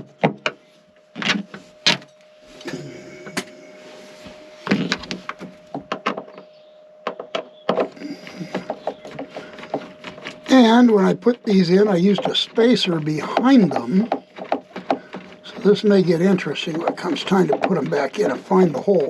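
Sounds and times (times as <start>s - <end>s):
metal scraping: 7.9s - 19.0s.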